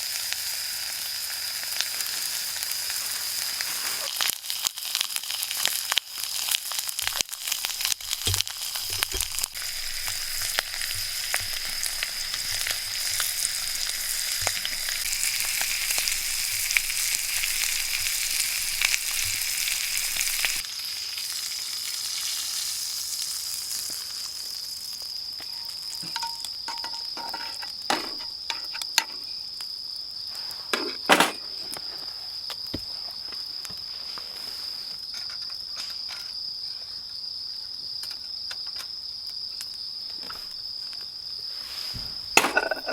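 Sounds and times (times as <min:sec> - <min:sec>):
sizzling: 0:00.0 - 0:36.6, 0:40.2 - 0:42.9
crickets trilling: 0:00.0 - 0:42.9.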